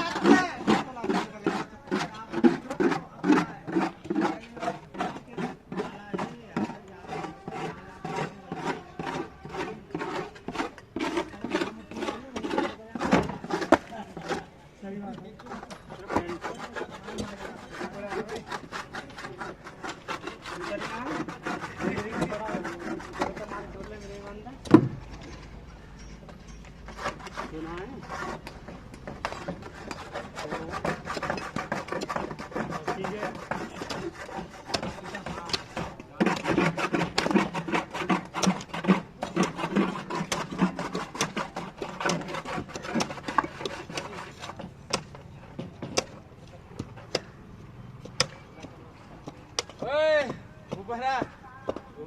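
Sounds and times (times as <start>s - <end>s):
faint voices: 0.0s - 28.8s
hand tool scraping: 0.0s - 47.4s, 48.0s - 52.0s.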